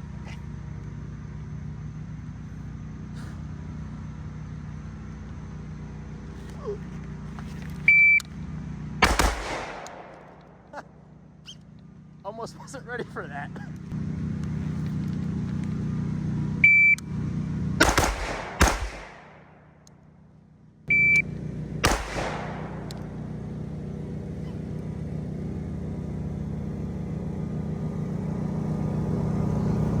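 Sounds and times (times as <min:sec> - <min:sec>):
low steady hum: 0:00.0 - 0:30.0
pistol shots: 0:09.0 - 0:10.7, 0:17.8 - 0:19.8, 0:21.8 - 0:23.3
shot timer beep: 0:16.6 - 0:17.0, 0:20.9 - 0:21.2.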